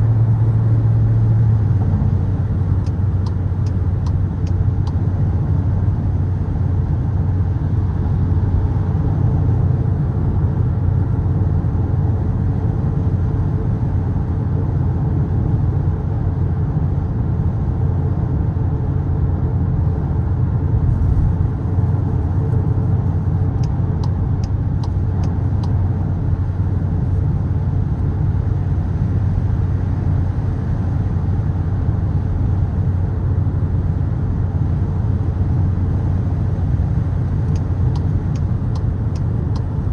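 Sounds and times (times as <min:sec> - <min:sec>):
car engine droning: 0:00.0 - 0:39.9
tyre and road noise: 0:20.4 - 0:31.0.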